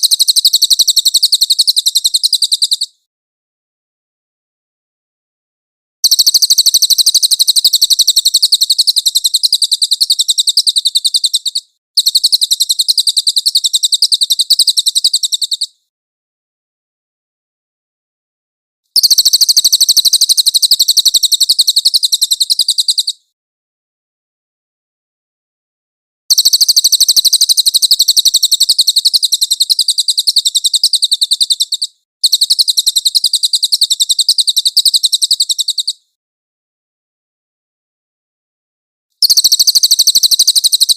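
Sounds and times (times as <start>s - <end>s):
songbird rapid high trill: 0.0s - 3.0s, 6.0s - 15.7s, 19.0s - 23.2s, 26.3s - 36.0s, 39.2s - 40.9s.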